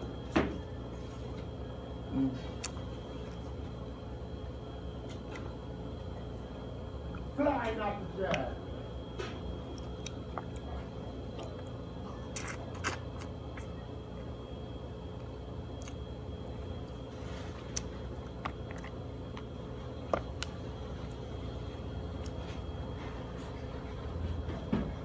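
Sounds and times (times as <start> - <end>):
steady background hum: 0.0 - 25.0
person chewing chicken: 9.6 - 13.3, 16.7 - 22.7.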